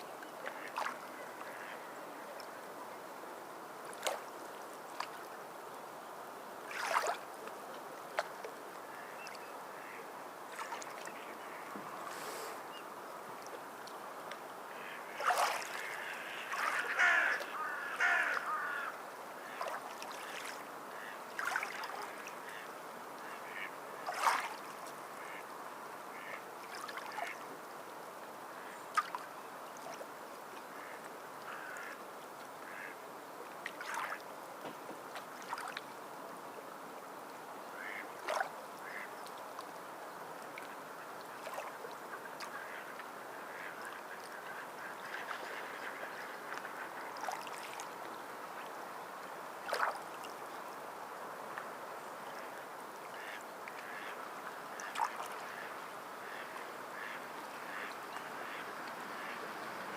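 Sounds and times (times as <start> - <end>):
sea water washing: 6.6 - 7.4, 14.7 - 22.6, 24.0 - 25.4.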